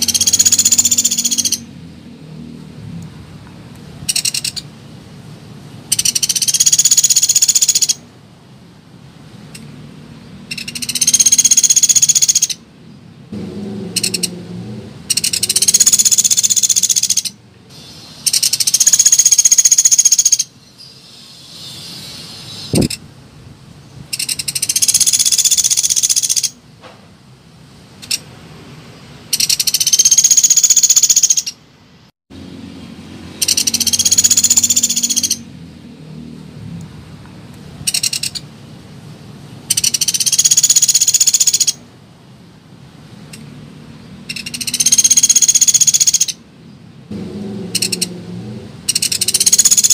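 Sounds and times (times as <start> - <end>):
woodpecker rattling trills: 0.0 - 1.7, 4.1 - 4.7, 5.9 - 8.0, 10.5 - 12.6, 13.9 - 14.3, 15.1 - 17.4, 18.2 - 20.5, 24.1 - 26.6, 29.3 - 31.6, 33.4 - 35.4, 37.9 - 38.4, 39.7 - 41.8, 44.3 - 46.4, 47.8 - 48.1, 48.9 - 49.9.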